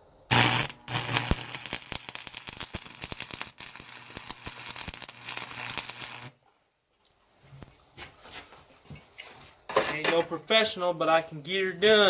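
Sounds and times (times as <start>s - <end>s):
welding arc crackling and spitting: 0.3s - 6.4s.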